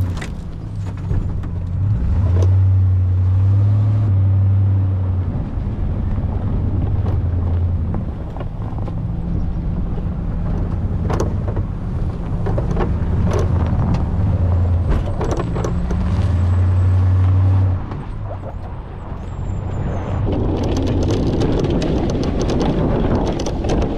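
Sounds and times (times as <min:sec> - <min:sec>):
pickup truck engine under load: 0:00.0 - 0:23.9.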